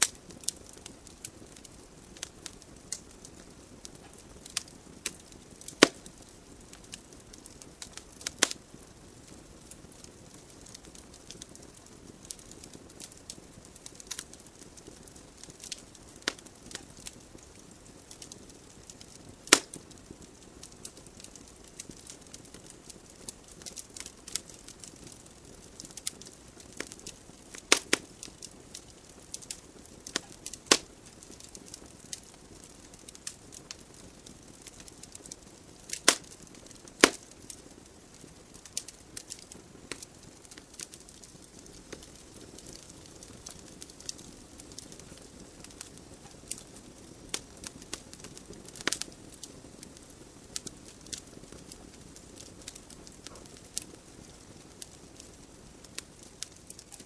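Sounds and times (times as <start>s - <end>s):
logs crackling: 0.0s - 57.0s
loud sharp pops: 19.5s - 19.8s, 30.2s - 30.9s, 37.0s - 37.2s.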